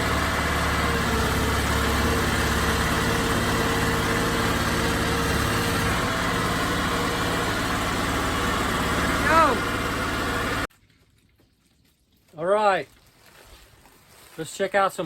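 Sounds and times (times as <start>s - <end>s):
boat engine humming: 0.0s - 10.7s.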